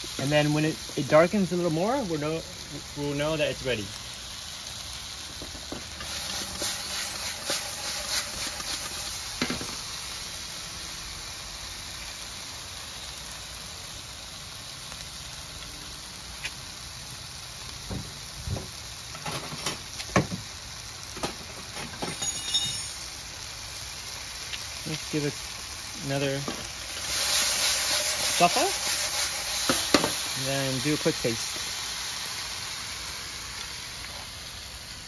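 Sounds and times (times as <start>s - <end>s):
squash sizzling in a frying pan: 0.0s - 35.0s
spatula scraping a pan: 5.9s - 9.8s, 26.5s - 30.3s.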